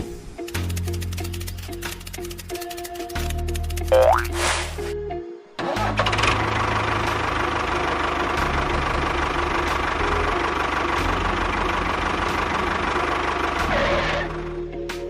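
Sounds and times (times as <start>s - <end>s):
engine running with low pulsing: 5.8s - 14.9s.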